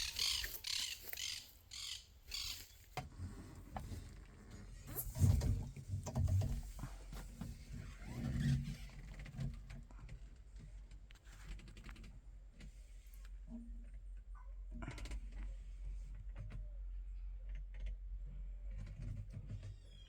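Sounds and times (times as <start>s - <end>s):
tractor engine humming: 0.0s - 5.3s.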